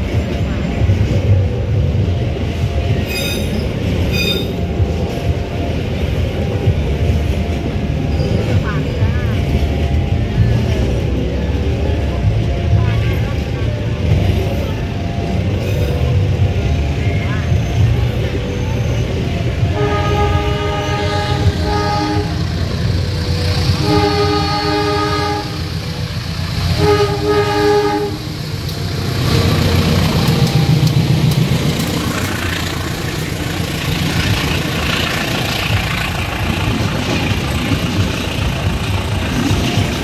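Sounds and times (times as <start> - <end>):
train passing with low rumble: 0.0 - 40.0
train wheels on rails: 0.0 - 40.0
locomotive horn: 19.6 - 25.9, 26.6 - 30.5.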